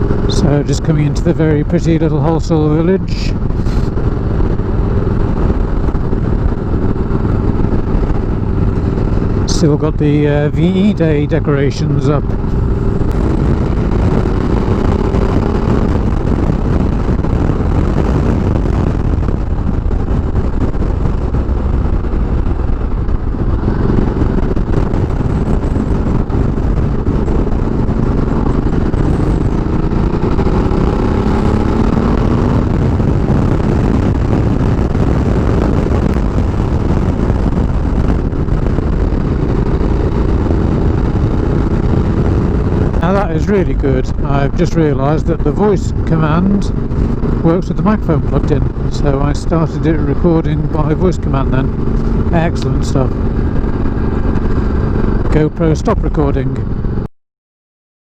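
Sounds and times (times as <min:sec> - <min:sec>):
motorcycle engine running: 0:00.0 - 0:57.1
wind rush on microphone: 0:00.0 - 0:57.1.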